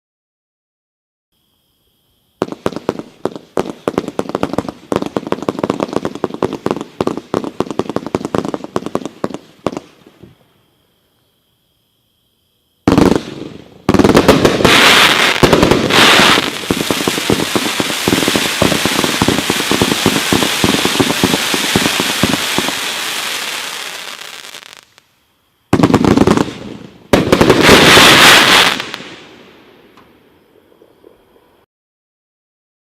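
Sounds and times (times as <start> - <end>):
firework bangs and crackling: 2.4 - 10.4, 12.8 - 25.0, 25.7 - 31.3.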